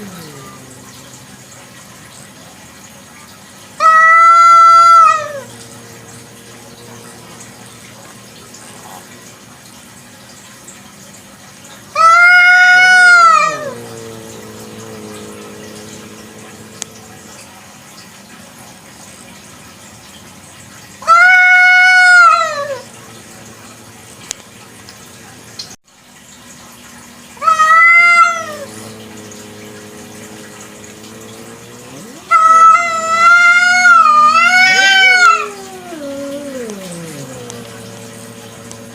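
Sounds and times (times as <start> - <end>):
faint hum: 0.0 - 9.9, 12.0 - 17.9, 21.2 - 25.4, 27.4 - 38.9
cat meowing: 3.8 - 7.4, 12.0 - 17.4, 21.0 - 22.9, 27.4 - 38.9.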